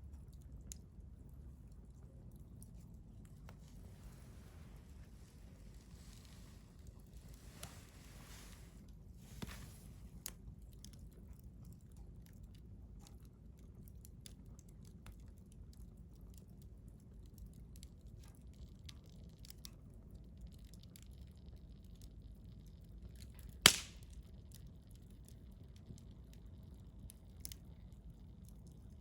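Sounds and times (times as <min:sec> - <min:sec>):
wood fire crackling: 0:00.0 - 0:29.0
soft hiss: 0:02.6 - 0:10.4.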